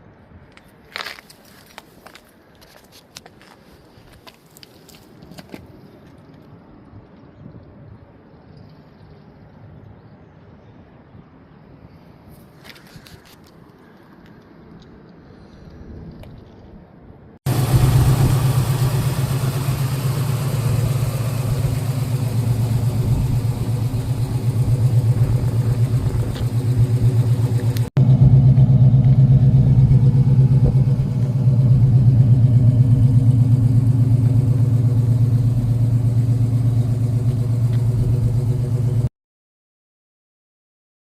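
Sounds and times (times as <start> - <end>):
engine rumbling: 17.5 - 39.1.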